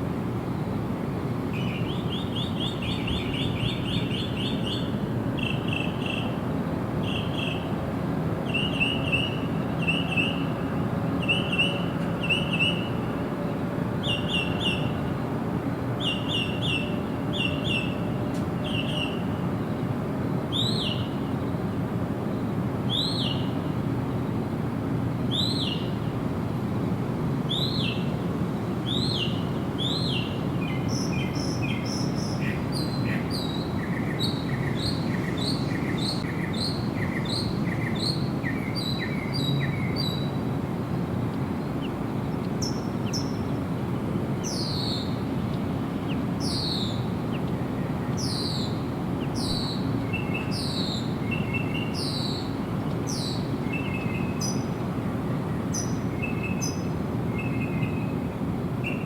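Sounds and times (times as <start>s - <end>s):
bird chirps: 46.0s - 47.6s, 48.2s - 52.5s.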